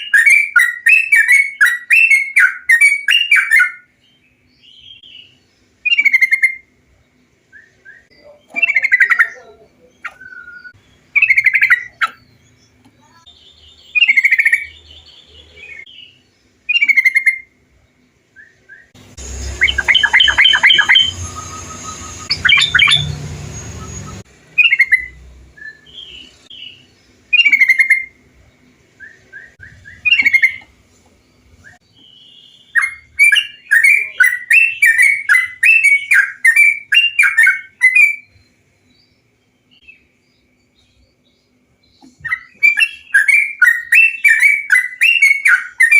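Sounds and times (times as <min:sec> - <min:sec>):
bulbul song: 0:00.0 - 0:45.9
bird chattering notes: 0:08.0 - 0:12.5, 0:13.2 - 0:15.9, 0:16.7 - 0:17.5, 0:19.1 - 0:25.2, 0:25.8 - 0:28.2, 0:29.5 - 0:30.7.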